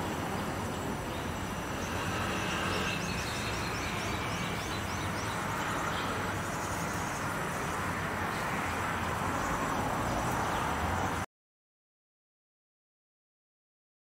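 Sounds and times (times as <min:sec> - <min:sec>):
bird chirping: 0:00.8 - 0:07.4.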